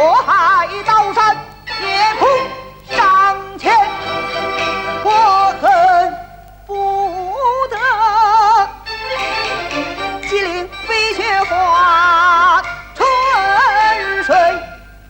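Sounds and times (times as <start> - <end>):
opera singing with vibrato: 0.0 - 15.0
orchestral accompaniment: 8.9 - 14.5.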